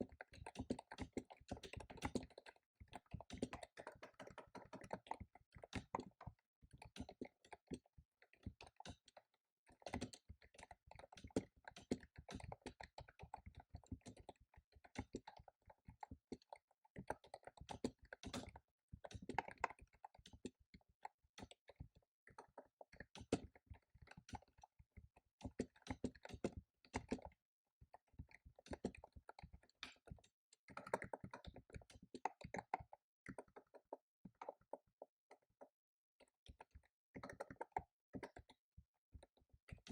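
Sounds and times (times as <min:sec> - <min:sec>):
typing on computer keyboard: 0:00.1 - 0:07.8, 0:21.4 - 0:24.6, 0:28.2 - 0:34.8, 0:39.2 - 0:39.9.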